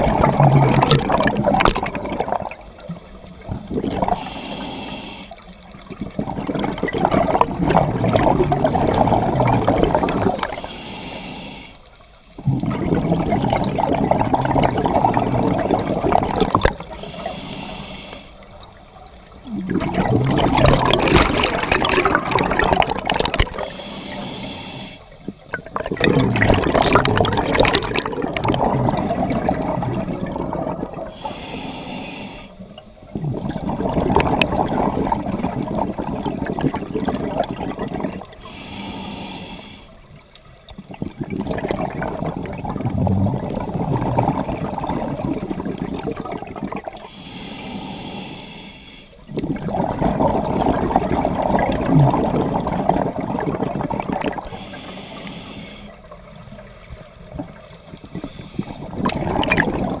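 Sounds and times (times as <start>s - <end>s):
exhaled bubbles rushing: 0.0s - 4.3s, 5.6s - 10.7s, 12.3s - 17.3s, 18.5s - 23.8s, 25.3s - 31.3s, 33.1s - 38.5s, 40.5s - 47.1s, 49.3s - 54.6s, 56.2s - 60.0s
regulator inhale hiss: 3.0s - 5.6s, 9.9s - 12.3s, 16.9s - 18.6s, 23.6s - 25.5s, 31.1s - 33.2s, 38.4s - 40.2s, 43.6s - 49.3s, 54.4s - 56.4s, 57.6s - 59.0s.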